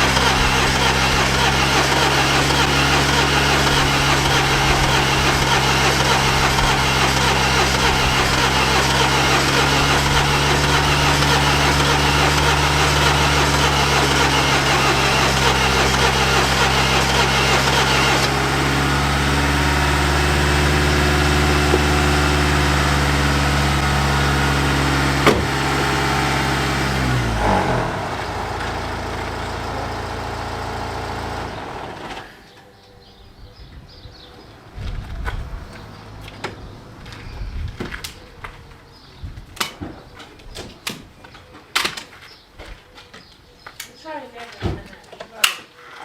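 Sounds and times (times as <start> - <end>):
engine cranking on starter motor: 0.0 - 32.6.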